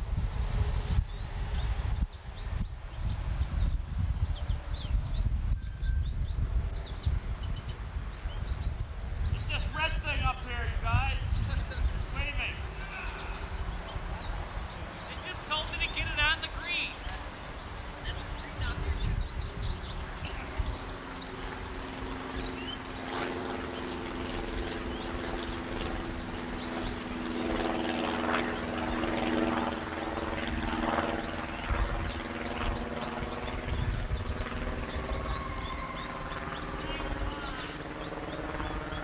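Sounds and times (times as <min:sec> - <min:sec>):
low rumbling: 0:00.0 - 0:27.4
birds chirping: 0:00.0 - 0:39.0
steady low hum: 0:00.0 - 0:39.0.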